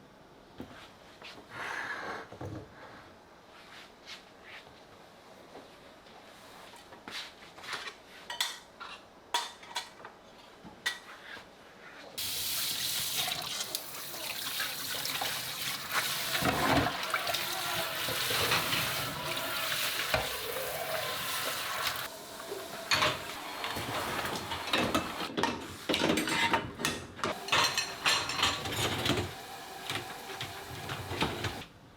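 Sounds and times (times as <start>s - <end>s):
kitchenware clinking: 15.0s - 31.6s
tap running into sink: 15.1s - 25.2s.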